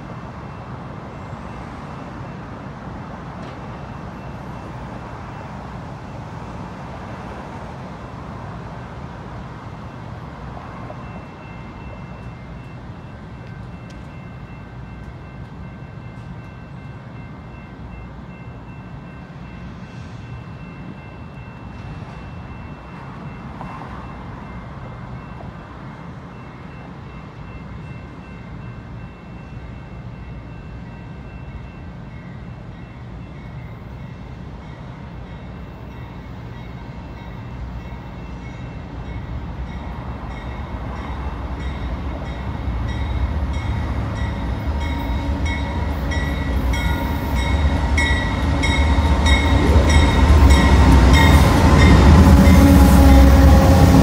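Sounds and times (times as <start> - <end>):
diesel locomotive engine rumble: 0.0 - 54.0
train wheel noise: 34.7 - 54.0.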